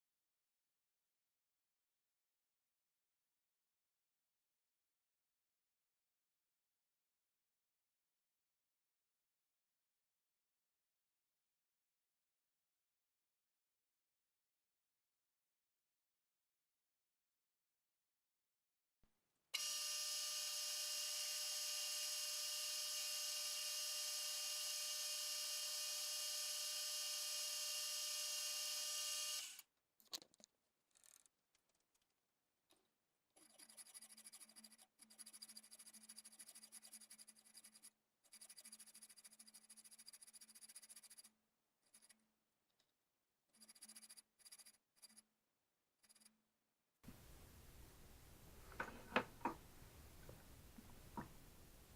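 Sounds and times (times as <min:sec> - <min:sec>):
power tool motor whining: 0:19.6 - 0:29.6.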